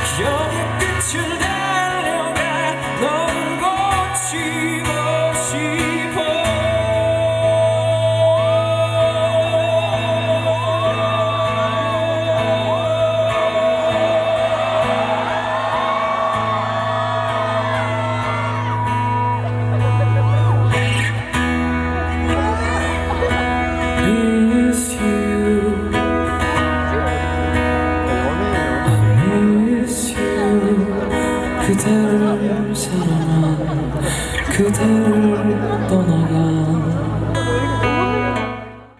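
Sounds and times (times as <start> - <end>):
live pop band music: 0.0 - 38.9
audience whooping and calling out: 7.8 - 24.2.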